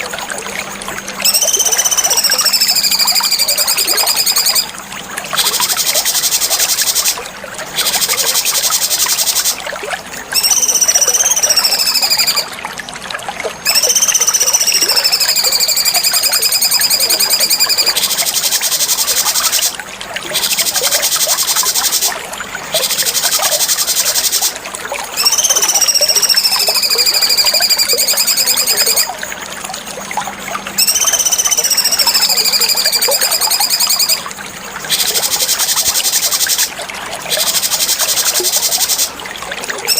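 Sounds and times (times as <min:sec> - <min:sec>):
bird singing whistled phrases: 0:01.2 - 0:04.7, 0:10.3 - 0:12.5, 0:13.6 - 0:19.7, 0:25.2 - 0:29.1, 0:30.8 - 0:34.2, 0:34.9 - 0:35.8
fast high bird chattering: 0:01.2 - 0:04.7, 0:10.4 - 0:12.5, 0:13.7 - 0:19.7, 0:25.2 - 0:29.1, 0:30.8 - 0:34.2.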